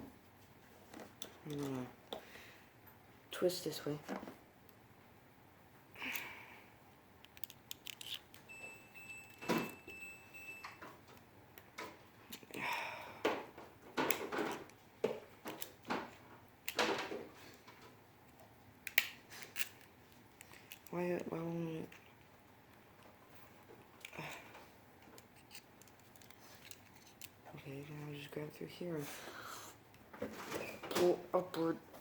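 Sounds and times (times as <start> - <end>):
wire being bent and twisted: 7.2 - 8.5, 17.8 - 22.2, 22.9 - 27.5.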